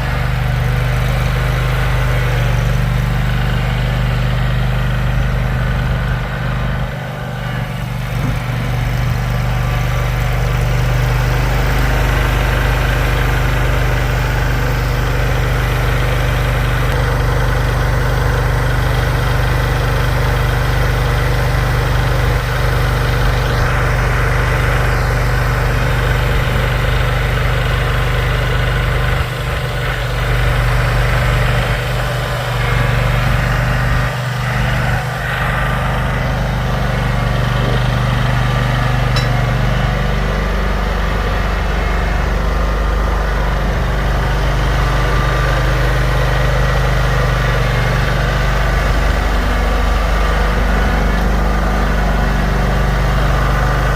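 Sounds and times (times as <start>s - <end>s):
vehicle engine humming: 0.0s - 53.9s.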